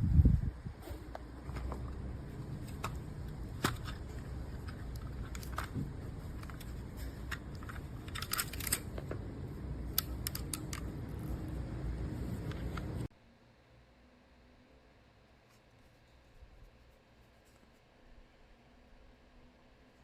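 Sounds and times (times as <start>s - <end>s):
low steady hum: 0.0s - 20.0s
objects clicking and tapping: 9.9s - 11.0s.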